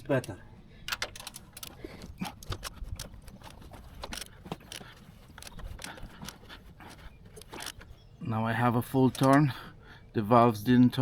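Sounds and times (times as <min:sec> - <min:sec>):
engine turned by wrench clicking: 0:00.2 - 0:07.9.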